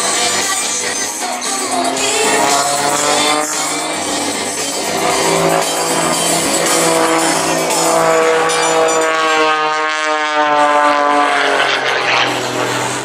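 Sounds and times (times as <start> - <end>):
propeller plane flying by: 0.0 - 13.0.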